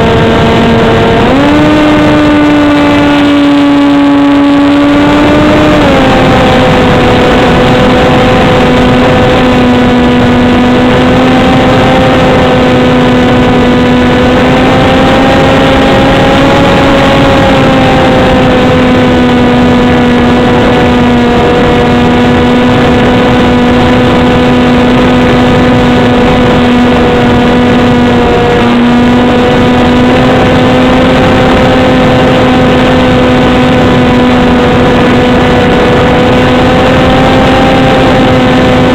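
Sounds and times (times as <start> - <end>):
propeller motor humming: 0.0 - 38.9
wind rushing over microphone: 0.0 - 38.9.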